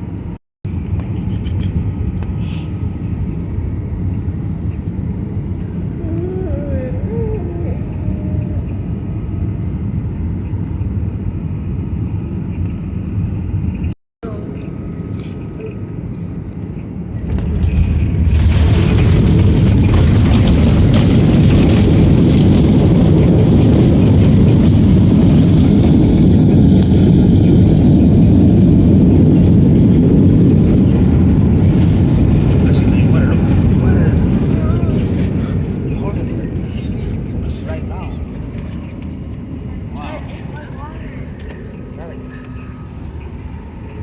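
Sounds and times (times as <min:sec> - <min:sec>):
airplane cabin engine drone: 0:00.0 - 0:44.0
loud engine roar: 0:17.2 - 0:39.0.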